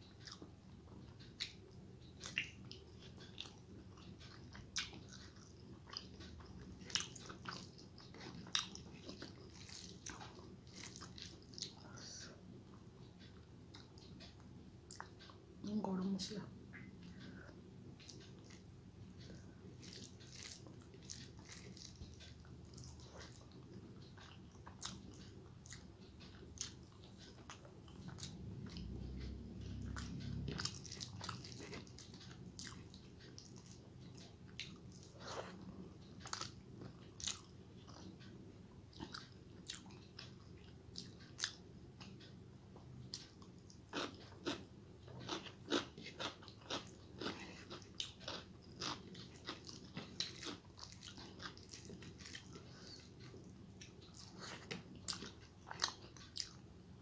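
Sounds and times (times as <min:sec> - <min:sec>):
person chewing with wet smacks: 0:00.0 - 0:57.0
low rumble: 0:27.8 - 0:31.6.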